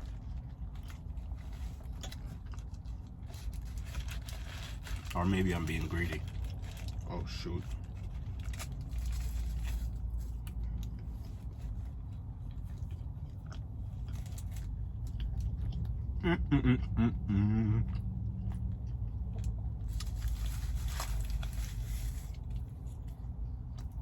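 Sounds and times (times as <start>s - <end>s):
chewing and biting food: 0.0s - 5.1s, 7.8s - 16.3s, 17.5s - 24.0s
steady low hum: 0.0s - 24.0s
wavering vocal sound: 16.2s - 17.9s.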